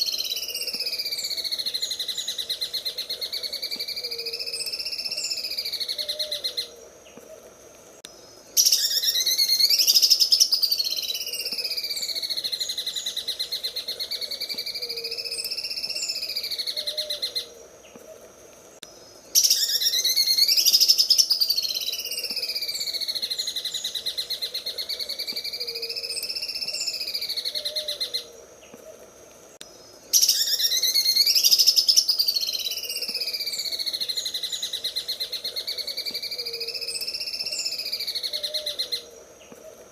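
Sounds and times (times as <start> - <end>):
bird singing rattling trill: 8.6 - 17.4, 19.3 - 28.2, 30.1 - 39.0.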